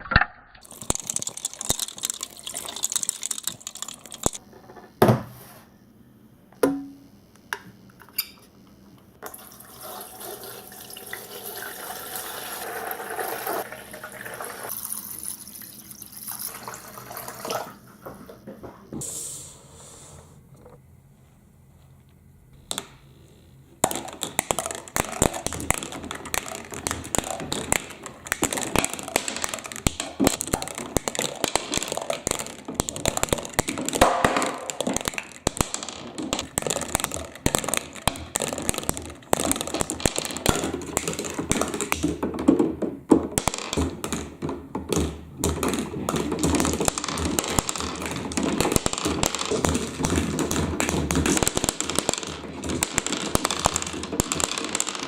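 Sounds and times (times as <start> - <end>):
plastic balls clattering down track: 0.0 - 4.4, 10.0 - 17.8, 23.8 - 55.0.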